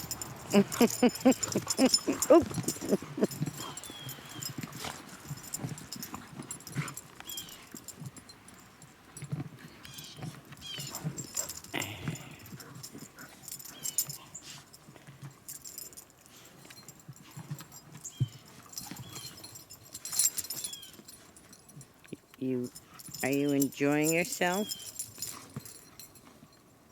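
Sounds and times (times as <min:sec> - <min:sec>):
dogs whimpering: 0:00.0 - 0:07.8, 0:09.9 - 0:14.4, 0:18.0 - 0:21.1
dogs panting: 0:00.0 - 0:26.4.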